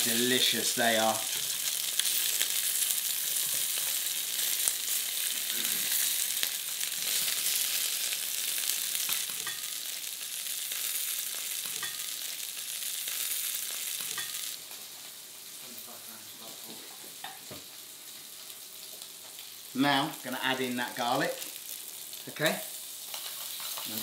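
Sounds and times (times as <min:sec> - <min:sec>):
food sizzling in a frying pan: 0:00.0 - 0:24.0
metal spoon clinking on pan: 0:09.3 - 0:09.7, 0:11.7 - 0:12.1, 0:14.0 - 0:14.4.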